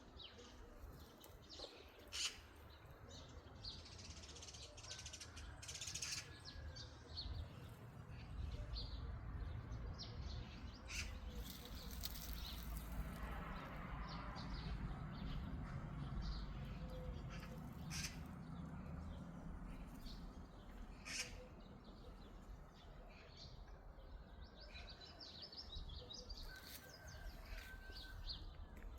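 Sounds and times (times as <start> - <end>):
birds chirping and singing: 9.8 - 12.9, 14.6 - 28.8.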